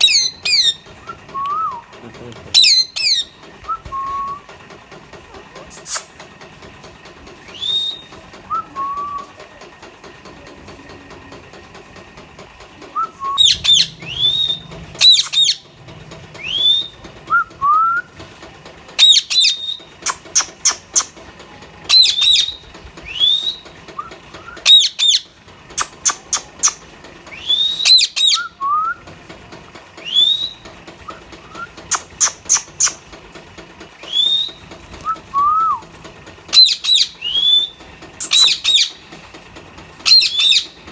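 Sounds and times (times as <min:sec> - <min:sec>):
parrots whistling and shrieking: 0:00.0 - 0:00.8, 0:02.5 - 0:04.3, 0:05.7 - 0:06.1, 0:07.5 - 0:08.1, 0:13.2 - 0:15.7, 0:16.4 - 0:17.9, 0:19.0 - 0:21.2, 0:21.9 - 0:23.7, 0:24.5 - 0:29.0, 0:30.0 - 0:33.0, 0:34.0 - 0:35.8, 0:36.5 - 0:39.0, 0:40.0 - 0:40.9.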